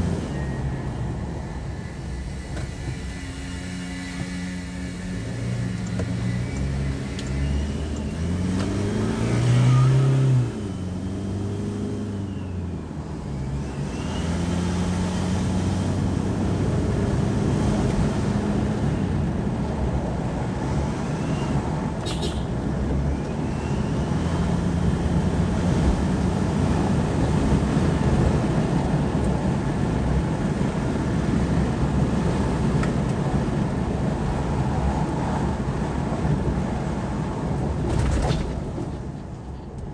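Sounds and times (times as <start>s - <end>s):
diesel engine accelerating: 0.0s - 39.9s
road noise: 0.0s - 39.9s
turbo whistling: 0.2s - 8.4s, 21.0s - 24.3s.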